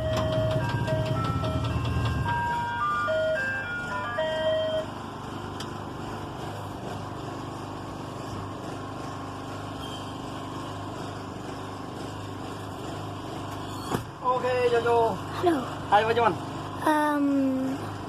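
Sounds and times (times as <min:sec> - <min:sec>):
ice cream truck chime tune: 0:00.0 - 0:05.2
truck engine idling: 0:00.0 - 0:18.0.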